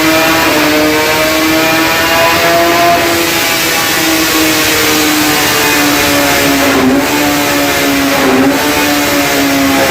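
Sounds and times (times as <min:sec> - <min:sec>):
motorcycle engine high-pitched howl: 0:00.0 - 0:09.9.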